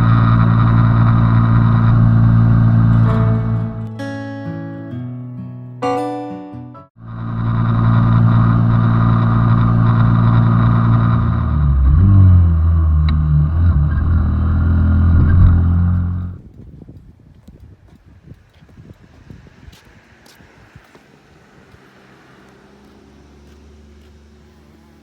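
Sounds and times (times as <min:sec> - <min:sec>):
motorcycle engine running: 0:00.0 - 0:03.7, 0:07.0 - 0:16.4.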